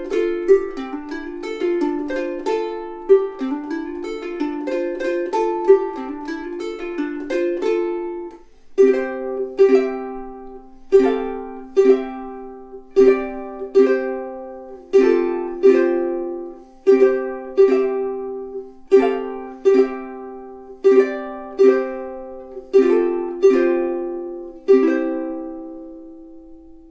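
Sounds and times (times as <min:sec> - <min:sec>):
ukulele strummed in slow chords: 0:00.0 - 0:26.9.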